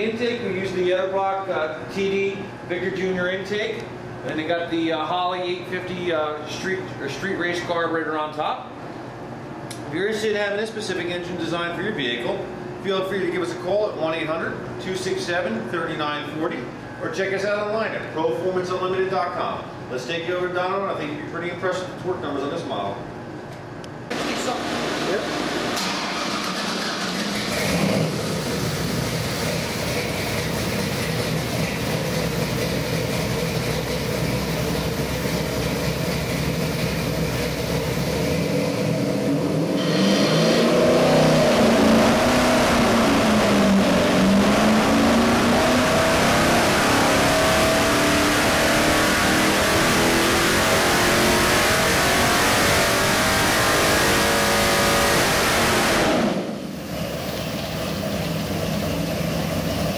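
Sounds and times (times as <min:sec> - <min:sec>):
engine running hard on a dyno: 0:24.1 - 0:59.9.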